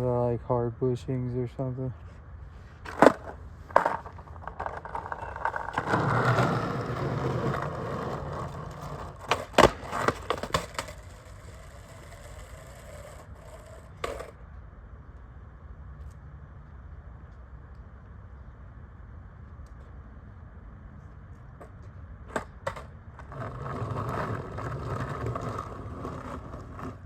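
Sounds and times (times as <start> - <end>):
skateboard wheels rolling: 2.0 - 18.4, 19.4 - 27.0
skateboard trucks scraping curb: 2.1 - 14.4, 21.6 - 27.0
skateboard clacking on ground: 2.8 - 14.4, 21.6 - 27.0.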